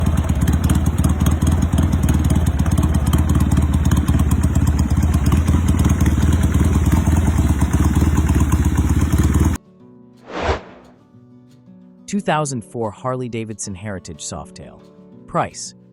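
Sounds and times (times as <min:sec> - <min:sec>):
motorcycle engine running: 0:00.0 - 0:09.6
short whoosh: 0:10.3 - 0:11.0.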